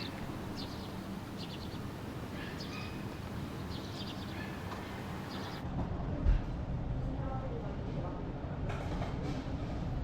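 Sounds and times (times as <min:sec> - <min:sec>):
small birds chirping: 0:00.0 - 0:05.6
steady low background noise: 0:00.0 - 0:08.7.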